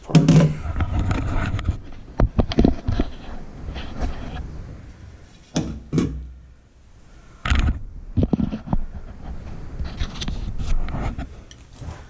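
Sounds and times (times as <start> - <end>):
knocks and clunks of fitting parts: 0.0 - 3.1, 5.5 - 6.4.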